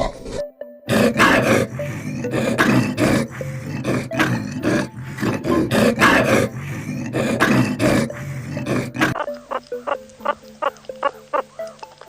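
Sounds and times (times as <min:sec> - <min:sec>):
animal roaring calls: 0:00.9 - 0:10.3.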